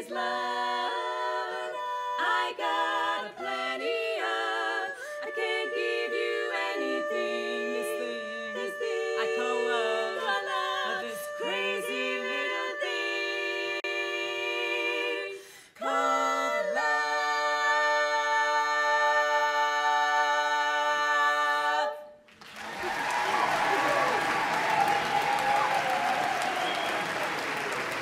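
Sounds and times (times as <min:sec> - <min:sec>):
women singing a cappella in harmony: 0:00.0 - 0:22.2.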